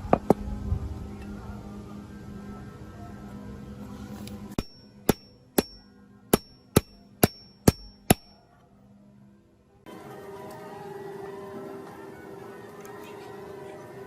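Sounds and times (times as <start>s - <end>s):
hammer striking metal: 4.6s - 8.4s.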